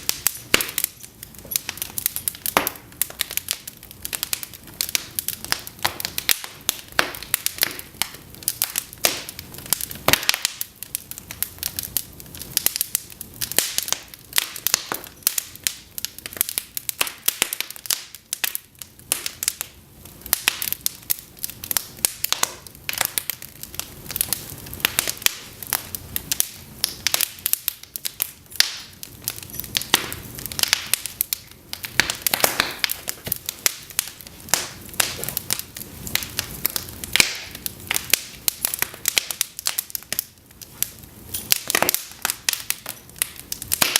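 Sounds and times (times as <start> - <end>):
logs crackling and popping: 0.0 - 43.9.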